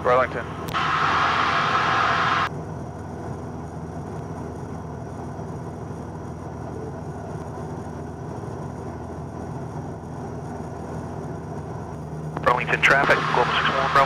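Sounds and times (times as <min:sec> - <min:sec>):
airplane engine and propeller drone: 0:00.0 - 0:14.0
radio hiss: 0:00.7 - 0:02.5, 0:12.4 - 0:14.0.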